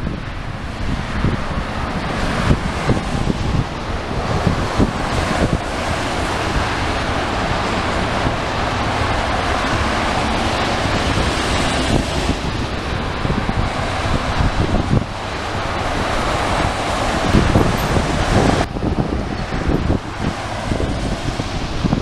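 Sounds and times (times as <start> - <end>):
airliner jet engines rushing: 0.0 - 22.0
wind buffeting microphone: 0.0 - 22.0.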